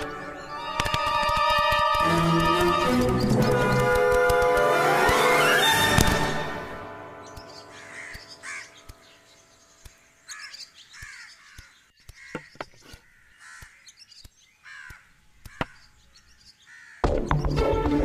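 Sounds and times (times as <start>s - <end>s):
background music: 0.0s - 8.8s, 17.0s - 18.0s
birds giving short calls: 7.2s - 17.5s.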